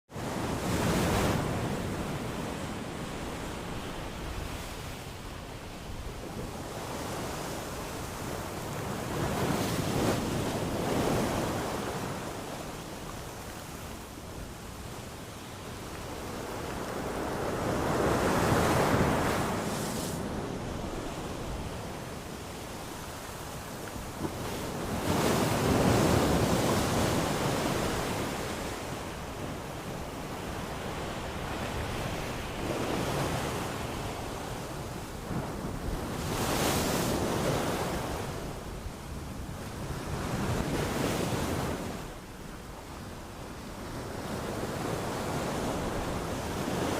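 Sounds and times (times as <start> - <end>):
sea waves breaking on shore: 0.2 - 46.9
sea waves breaking on beach: 15.4 - 38.8.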